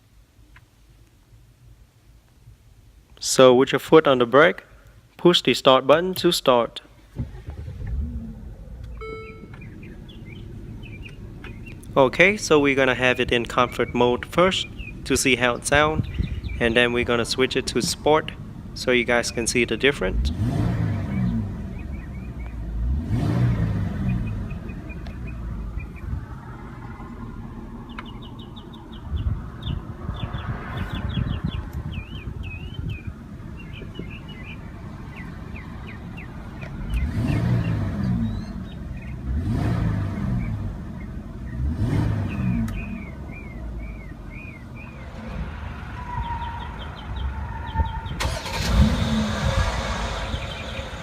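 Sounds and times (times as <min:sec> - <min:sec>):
birds chirping: 0:07.0 - 0:51.0
car engine idling and revving: 0:07.1 - 0:51.0.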